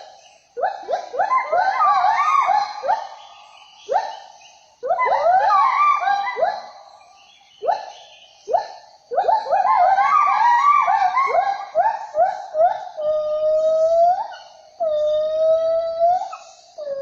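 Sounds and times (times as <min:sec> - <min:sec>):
animals whooping: 0:00.6 - 0:03.1, 0:04.8 - 0:06.8, 0:09.2 - 0:17.0.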